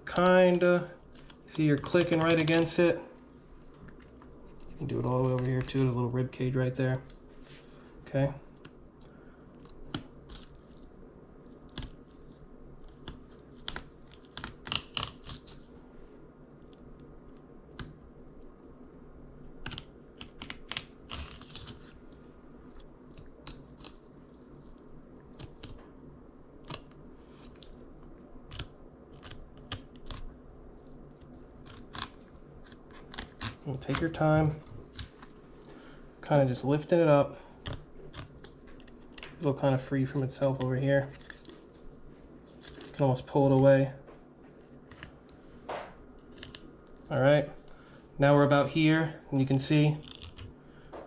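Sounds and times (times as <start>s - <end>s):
knife crunching through fish bones: 11.6s - 15.7s, 19.6s - 25.8s, 28.5s - 35.4s, 37.6s - 39.2s, 42.4s - 43.0s, 44.6s - 45.4s, 46.2s - 47.1s, 50.0s - 50.6s.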